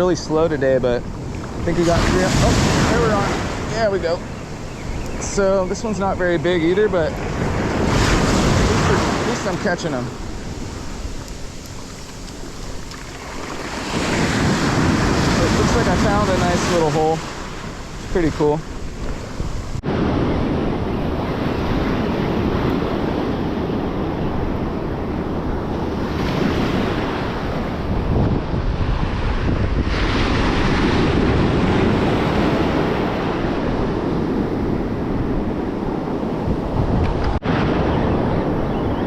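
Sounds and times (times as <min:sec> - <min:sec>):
ocean surf breaking on beach: 0:00.0 - 0:39.0
wind buffeting microphone: 0:00.0 - 0:39.0.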